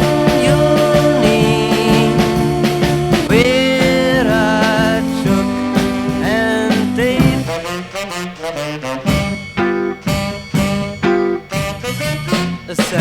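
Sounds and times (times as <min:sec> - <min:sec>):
sliding lead guitar line: 0:00.0 - 0:07.6, 0:09.2 - 0:11.6
beat band playing: 0:00.0 - 0:13.0.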